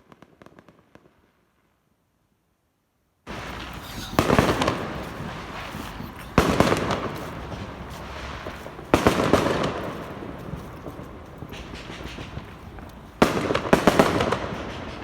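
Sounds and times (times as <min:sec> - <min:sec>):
loud firework bangs: 0:03.3 - 0:15.0
small firework pops: 0:03.3 - 0:15.0.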